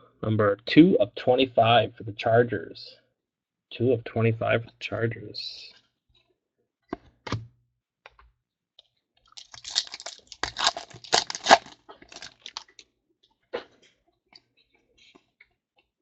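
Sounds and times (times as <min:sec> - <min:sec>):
foil wrapper crinkling and tearing: 0:09.3 - 0:12.8.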